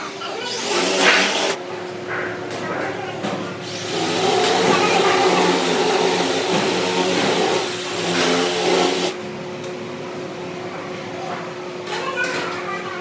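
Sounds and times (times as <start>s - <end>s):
motor-driven machine whirring: 0.0s - 1.6s, 3.6s - 9.2s.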